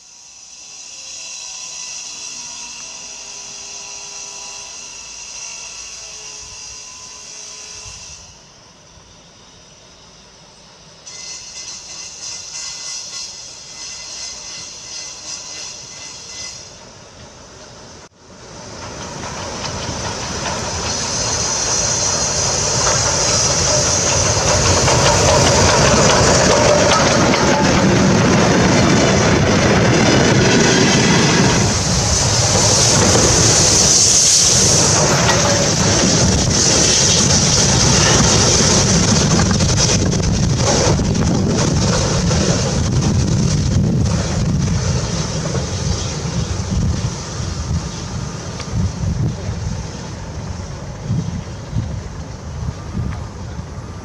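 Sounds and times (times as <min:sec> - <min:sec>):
steam locomotive hissing: 0:00.0 - 0:54.0
wheels clattering on rails: 0:18.7 - 0:47.1
wind buffeting microphone: 0:19.2 - 0:54.0.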